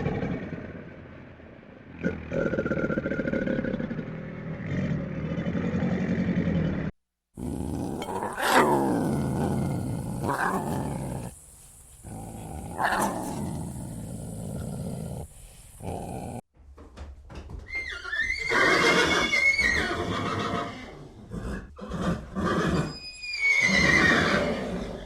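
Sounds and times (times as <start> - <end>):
animal roaring: 1.9 - 11.3, 12.0 - 16.4
animal growling: 1.9 - 11.4, 12.0 - 16.4.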